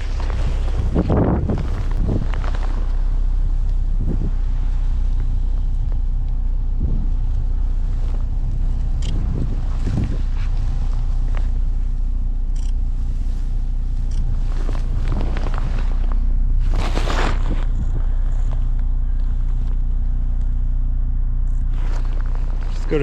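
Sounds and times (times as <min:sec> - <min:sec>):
wind buffeting microphone: 0:00.0 - 0:20.2
faint ticks: 0:07.3 - 0:09.3, 0:11.2 - 0:15.9.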